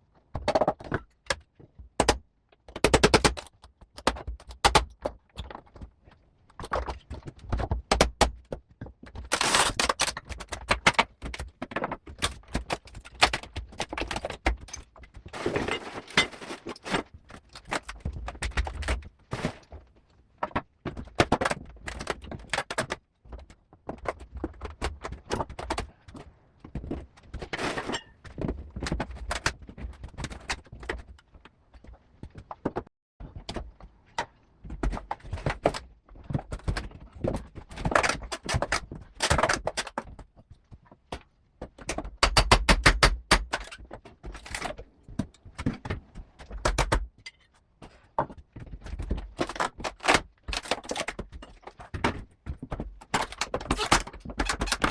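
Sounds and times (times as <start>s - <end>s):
knocks clatter and scrapes: 9.1s - 40.9s.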